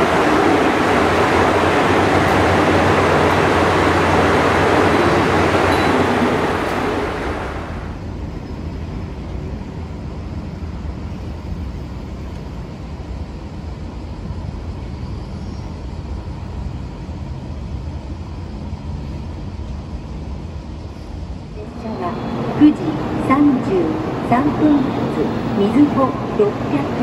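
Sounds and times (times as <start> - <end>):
traffic rumble: 0.0 - 8.0, 21.4 - 27.0
diesel railcar passing: 0.0 - 27.0.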